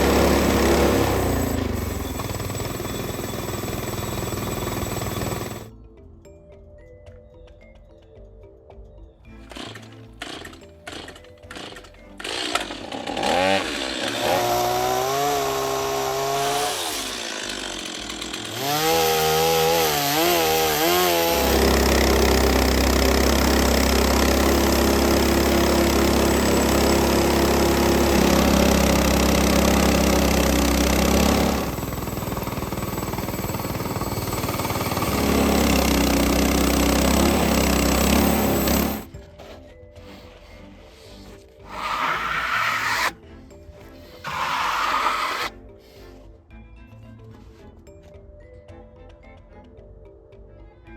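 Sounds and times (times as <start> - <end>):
sawing wood: 0.0 - 5.7, 9.5 - 43.2, 43.9 - 45.6
small gasoline engine revving: 0.0 - 5.7, 9.5 - 39.1, 44.2 - 45.5.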